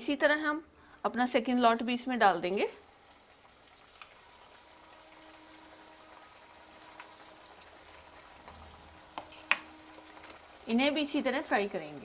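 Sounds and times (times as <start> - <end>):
food frying in hot oil: 0.0 - 12.0.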